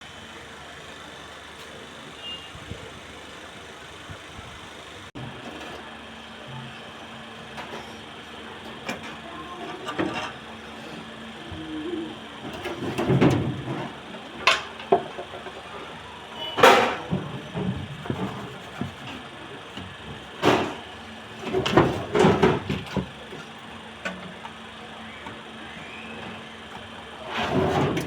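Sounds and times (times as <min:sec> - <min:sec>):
knocks and clatter: 0:16.6 - 0:24.3
scraping bursts: 0:27.1 - 0:28.0.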